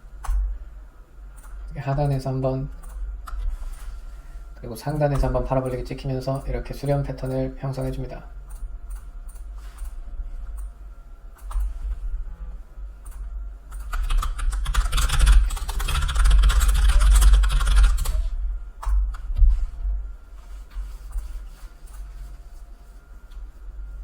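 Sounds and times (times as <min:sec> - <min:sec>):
typing on a computer keyboard: 0:13.1 - 0:19.1.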